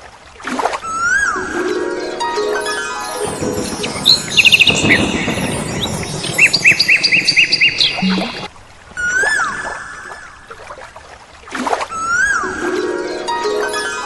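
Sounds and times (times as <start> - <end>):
songbirds chirping: 3.2 - 8.5.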